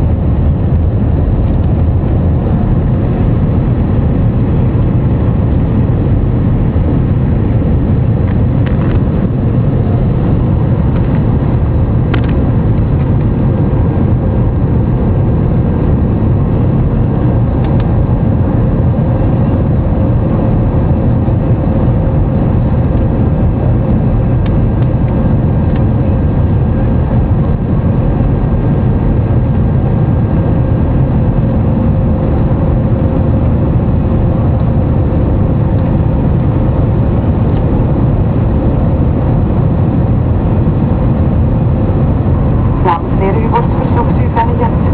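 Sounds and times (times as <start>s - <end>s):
jet engines rumbling in cabin: 0.0s - 44.9s
faint steady hum: 21.6s - 44.9s.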